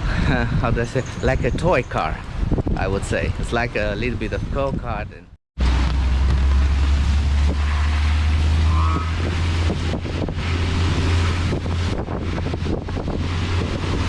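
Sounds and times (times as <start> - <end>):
wind buffeting microphone: 0.0 - 14.0
engine and road noise drone: 5.6 - 14.0.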